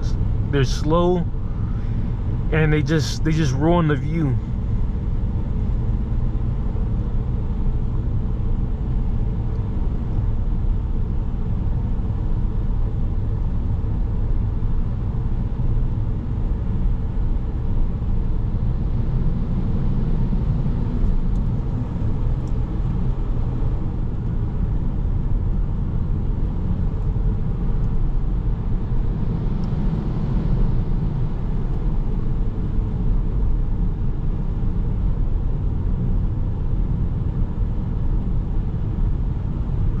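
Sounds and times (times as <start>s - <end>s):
car interior road rumble: 0.0s - 10.6s.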